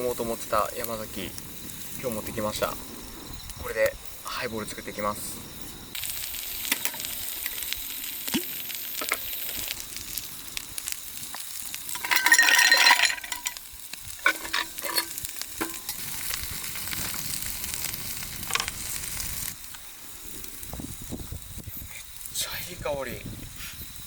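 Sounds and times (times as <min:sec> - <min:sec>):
steady hiss: 0:00.0 - 0:24.0
glass clicks and clinks: 0:11.9 - 0:13.6, 0:14.2 - 0:16.0
liquid pouring: 0:11.9 - 0:13.6.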